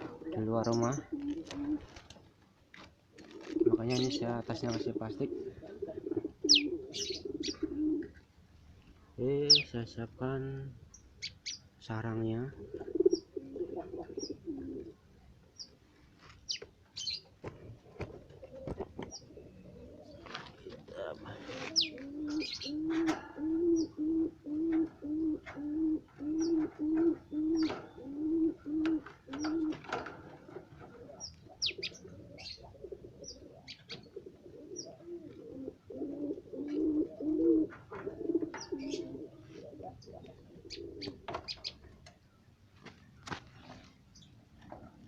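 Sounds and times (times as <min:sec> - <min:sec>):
dove cooing: 0:00.0 - 0:02.0, 0:03.1 - 0:08.2, 0:12.4 - 0:15.1, 0:18.1 - 0:42.0
small birds chirping: 0:00.3 - 0:01.2, 0:03.8 - 0:05.8, 0:06.4 - 0:08.3, 0:08.9 - 0:13.5, 0:14.1 - 0:14.8, 0:15.5 - 0:17.4, 0:19.0 - 0:22.9, 0:23.6 - 0:24.0, 0:26.2 - 0:28.4, 0:31.1 - 0:35.1, 0:38.6 - 0:45.0.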